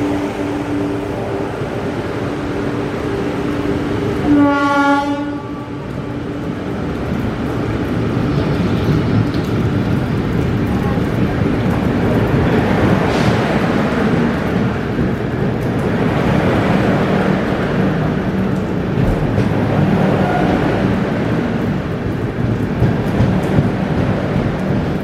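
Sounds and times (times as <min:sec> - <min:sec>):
train rumbling through station: 0:00.0 - 0:25.0
locomotive horn: 0:04.2 - 0:05.8.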